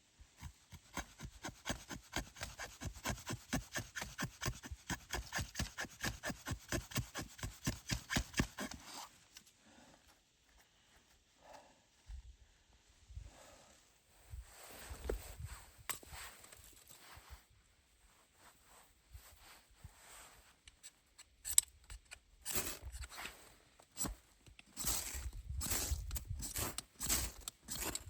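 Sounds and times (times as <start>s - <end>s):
hand saw cutting wood: 0.4s - 9.1s, 22.4s - 23.2s, 24.0s - 28.0s.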